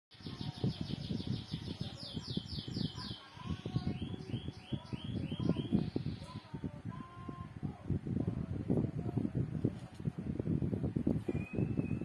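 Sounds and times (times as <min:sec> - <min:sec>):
bird chirping rapidly: 0:00.2 - 0:06.6.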